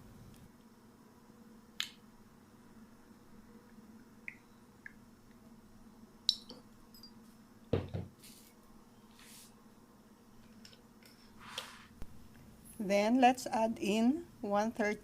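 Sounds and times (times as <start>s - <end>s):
faint steady hum: 0.0s - 15.0s
dull knock: 7.8s - 8.1s.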